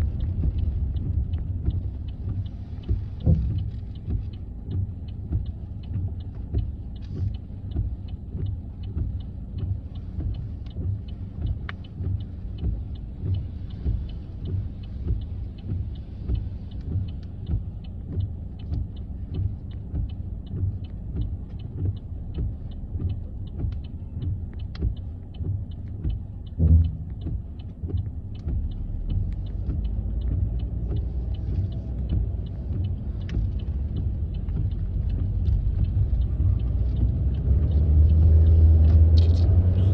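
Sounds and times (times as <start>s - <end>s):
car cabin rumble: 0.0s - 39.9s
turn signal ticking: 0.0s - 39.9s
single thump: 26.6s - 27.0s.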